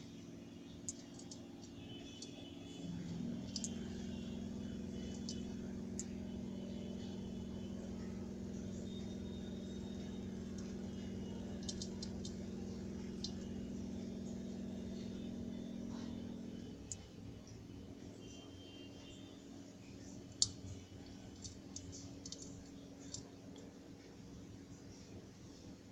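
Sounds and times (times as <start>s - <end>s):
aquarium pump humming: 0.0s - 25.9s
faint high ticks: 3.4s - 4.3s, 4.9s - 6.1s.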